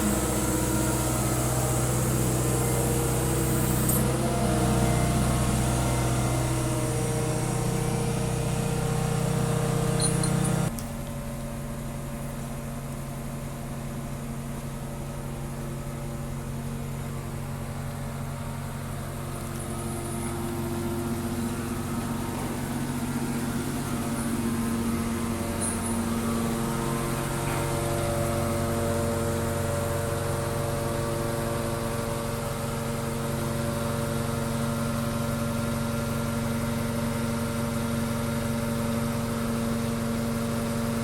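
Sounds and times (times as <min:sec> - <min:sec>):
truck diesel engine running: 0:00.0 - 0:10.7, 0:15.1 - 0:35.1.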